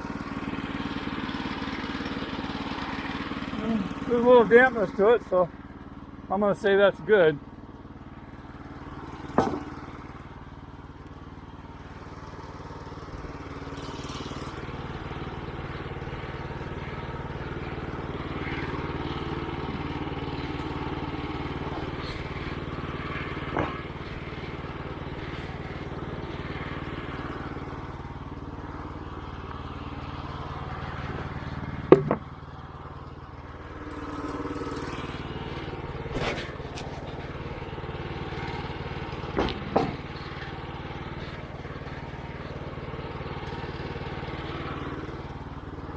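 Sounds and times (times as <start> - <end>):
sawmill gas engine running: 0.0 - 45.9
sharp knocks: 9.4 - 9.8, 31.9 - 32.3, 39.3 - 40.1
band blade cutting log: 34.1 - 37.3.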